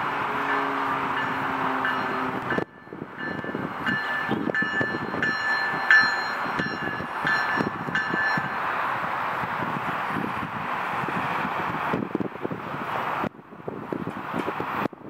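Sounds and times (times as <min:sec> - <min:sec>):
train rumbling on rails: 0:00.0 - 0:15.0
ringing tone: 0:01.2 - 0:08.6.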